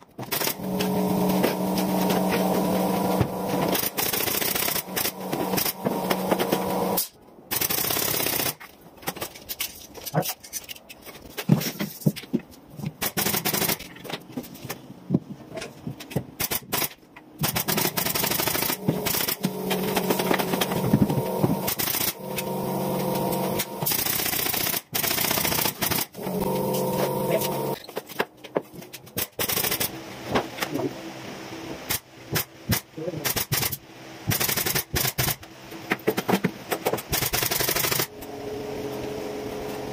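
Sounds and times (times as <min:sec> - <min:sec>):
machine humming: 0:00.5 - 0:07.0, 0:17.7 - 0:24.5, 0:26.1 - 0:27.8, 0:38.1 - 0:39.9
sharp clicks and bangs: 0:16.0 - 0:29.9.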